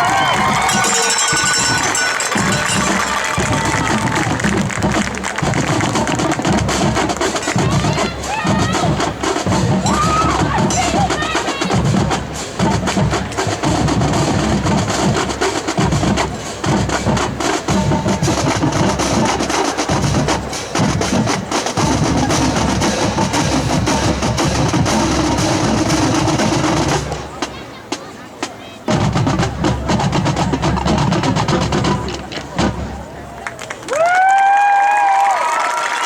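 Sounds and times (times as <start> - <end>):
snare and bass drums: 0.0 - 34.6.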